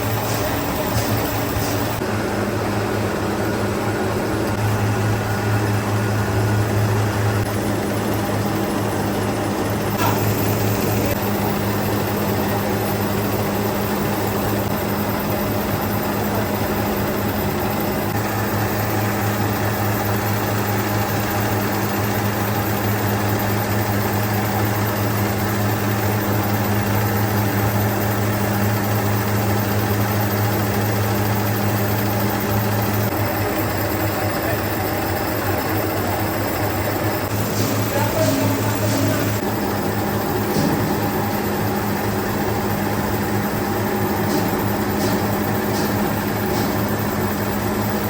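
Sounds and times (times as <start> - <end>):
mechanical noise: 0.0 - 21.6, 25.0 - 48.0
factory machinery humming: 0.0 - 48.0.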